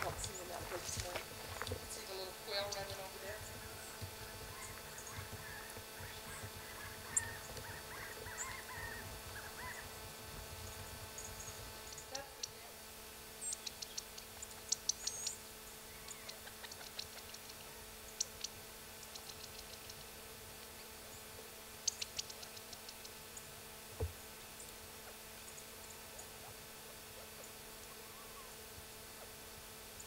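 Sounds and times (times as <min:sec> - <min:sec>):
small birds chirping: 0:00.0 - 0:23.5.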